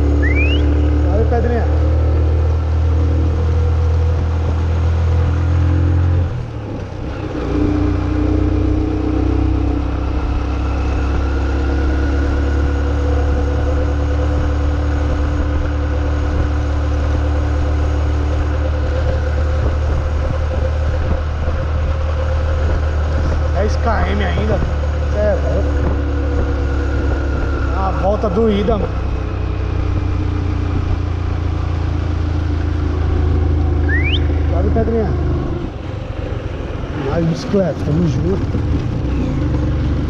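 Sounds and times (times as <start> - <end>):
road traffic engine hum: 0.0 - 40.0
wind rumbling on microphone: 14.3 - 28.0, 28.7 - 40.0.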